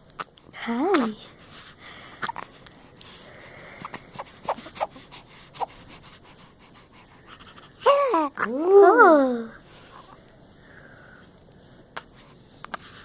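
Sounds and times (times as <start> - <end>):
baby breathing: 1.1 - 8.4
baby cooing: 4.1 - 5.8, 7.8 - 9.6.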